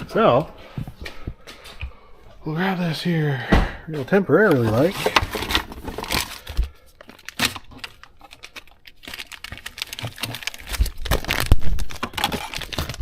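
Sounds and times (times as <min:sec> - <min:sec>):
packaging crinkling and rustling: 0:04.3 - 0:13.0.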